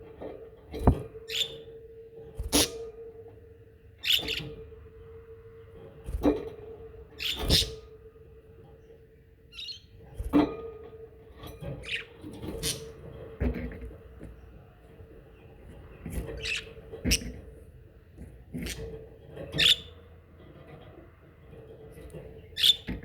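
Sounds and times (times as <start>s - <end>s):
budgerigars chirping: 1.3s - 1.6s, 4.0s - 4.6s, 7.2s - 7.8s, 9.6s - 9.9s, 11.8s - 13.0s, 16.2s - 17.5s, 18.6s - 20.0s, 22.6s - 22.9s.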